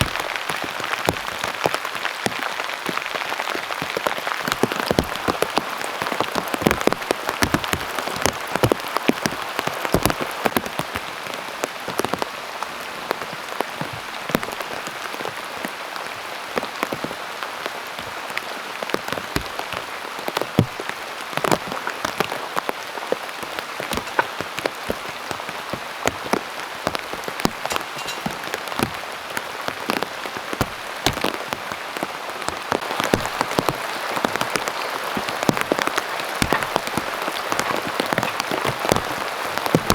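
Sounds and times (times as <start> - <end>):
rain hissing: 0.0 - 39.9
drops hitting a surface: 27.6 - 28.9.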